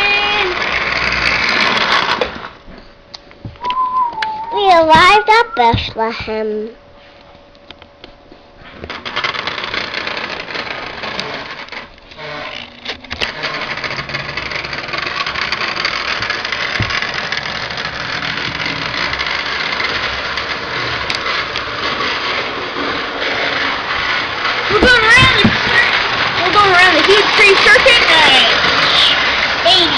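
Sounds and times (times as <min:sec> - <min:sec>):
toy train motor whirring: 0:00.0 - 0:02.6, 0:08.6 - 0:29.9.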